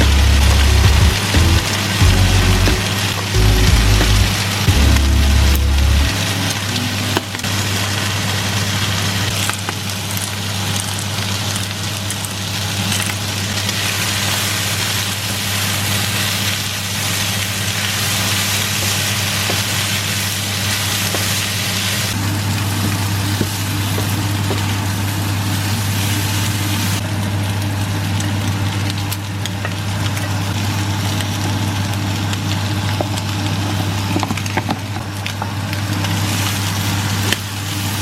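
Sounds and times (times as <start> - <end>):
electric hum: 0.0 - 8.2.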